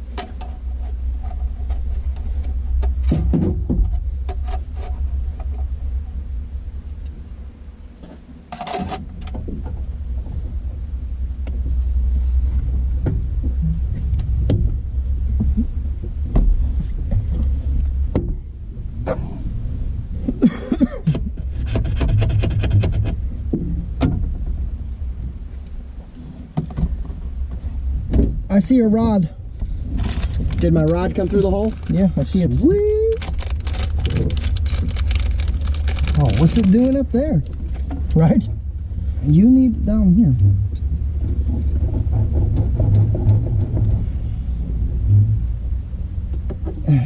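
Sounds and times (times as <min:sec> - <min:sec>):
steady low rumble: 0:00.0 - 0:47.0
knocks and clicks inside a car: 0:02.8 - 0:04.4, 0:12.7 - 0:17.5, 0:18.1 - 0:18.5, 0:20.8 - 0:24.7, 0:26.6 - 0:28.5, 0:40.4 - 0:45.1
rod scraping through car body: 0:21.4 - 0:23.2.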